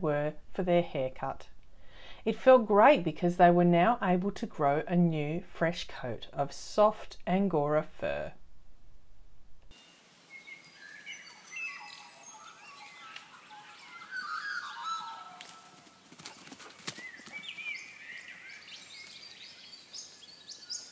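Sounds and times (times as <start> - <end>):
birds chirping and calling: 10.5 - 20.9.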